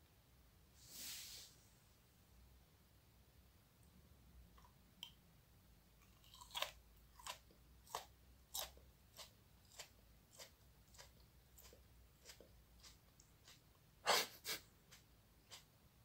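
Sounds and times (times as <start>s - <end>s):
person crunching chili pepper: 6.0s - 15.7s.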